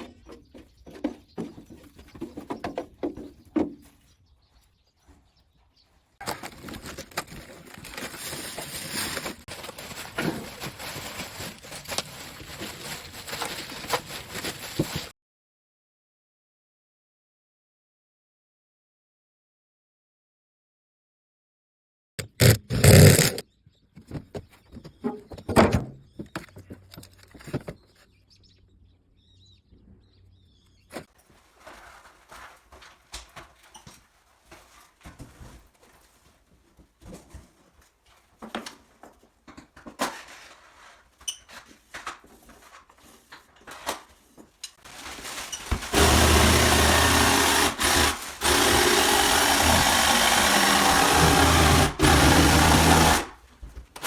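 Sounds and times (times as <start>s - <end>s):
knocks and clatter of hand work: 0.0s - 4.0s
power tool running: 22.2s - 23.4s, 45.8s - 53.4s.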